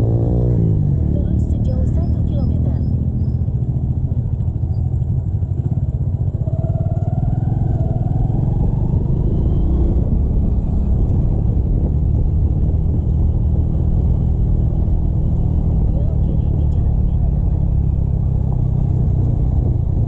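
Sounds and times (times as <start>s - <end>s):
motorcycle engine rumbling: 0.0s - 20.0s
road noise: 0.0s - 20.0s.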